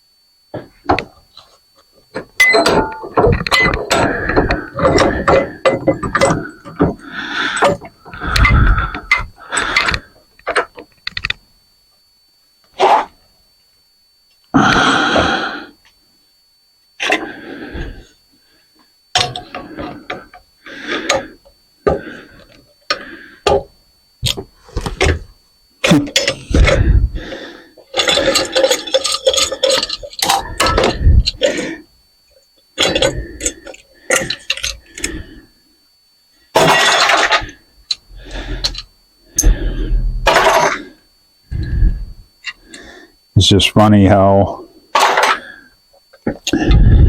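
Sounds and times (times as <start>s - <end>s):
metal fan parts clanking: 2.2s - 11.4s, 19.1s - 22.2s, 24.2s - 31.7s, 32.8s - 35.2s, 36.6s - 40.9s.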